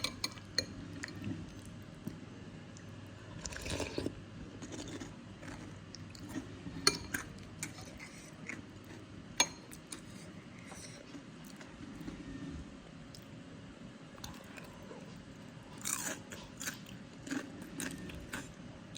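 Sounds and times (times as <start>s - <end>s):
chewing and biting food: 3.4s - 6.5s, 15.8s - 18.5s.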